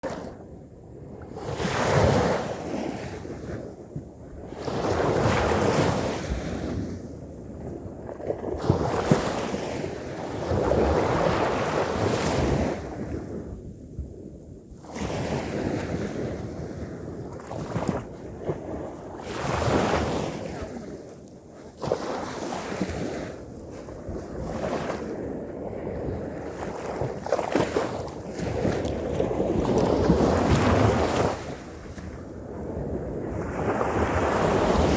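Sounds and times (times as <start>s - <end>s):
wind on microphone: 0.0s - 34.9s
ocean waves breaking: 14.9s - 34.9s.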